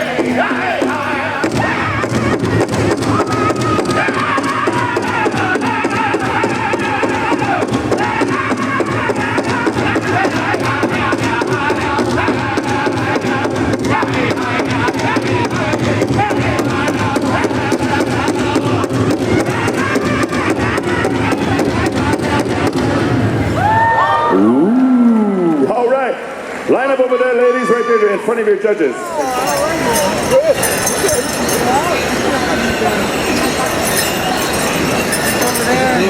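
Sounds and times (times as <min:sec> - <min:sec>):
group singing: 0:00.0 - 0:02.9.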